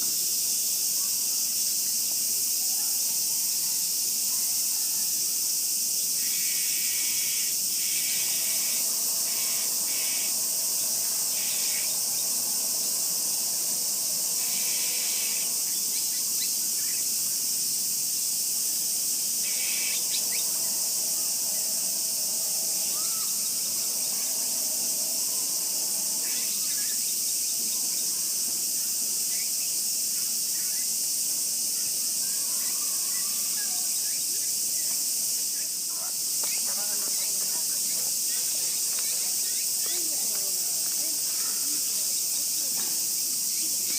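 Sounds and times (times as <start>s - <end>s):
high-pitched insect chorus: 0.0s - 43.9s
short bursts of chirping: 6.2s - 17.6s.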